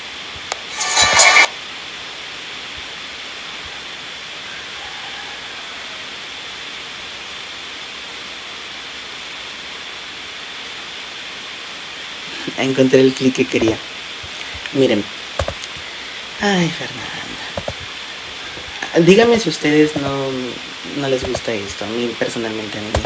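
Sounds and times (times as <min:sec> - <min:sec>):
steady hiss: 0:00.0 - 0:23.0
short loud burst of noise: 0:00.6 - 0:01.6.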